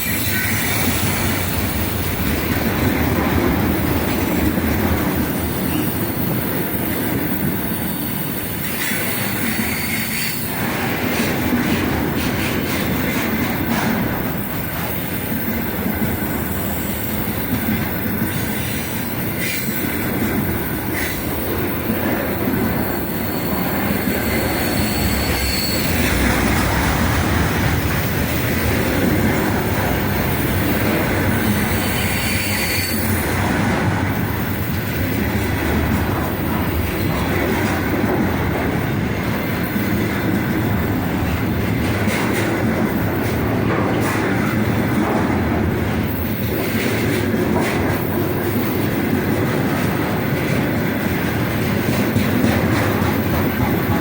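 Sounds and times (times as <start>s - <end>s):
high-pitched wheel squeals: 23.1s - 27.3s, 31.7s - 33.4s.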